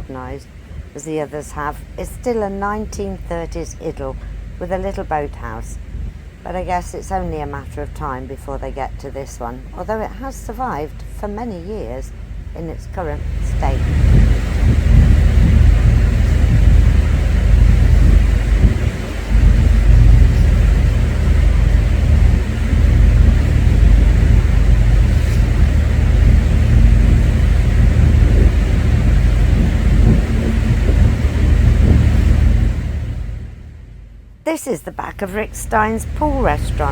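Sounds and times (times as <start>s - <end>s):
faint constant hum: 0.0s - 36.9s
ferry engine rumble: 0.0s - 36.9s.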